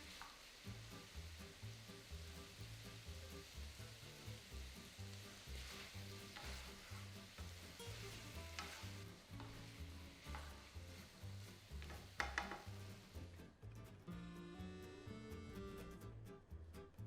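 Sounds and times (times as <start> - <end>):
food sizzling in a pan: 0.0 - 13.4
utensil scraping a pan: 3.2 - 13.2.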